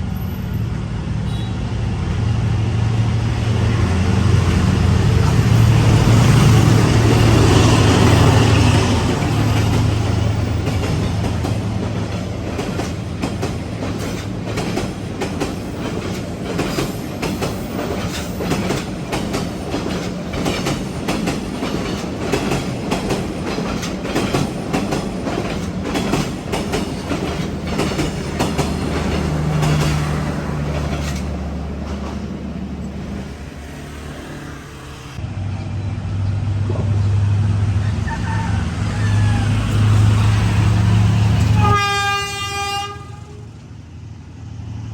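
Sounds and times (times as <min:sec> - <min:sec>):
train engine hum: 0:00.0 - 0:44.9
wheels clacking over rail joints: 0:03.6 - 0:34.5.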